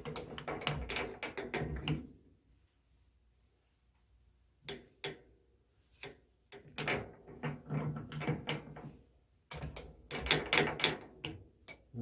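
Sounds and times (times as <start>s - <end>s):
metal clicks and rattling: 0.0s - 2.0s, 9.5s - 11.9s.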